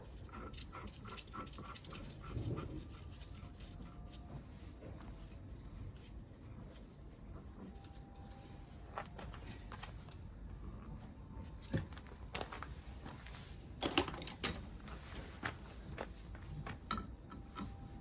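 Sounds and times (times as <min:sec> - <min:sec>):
low steady hum: 0:00.0 - 0:18.0
tools clicking and knocking: 0:13.8 - 0:14.8, 0:16.7 - 0:17.8.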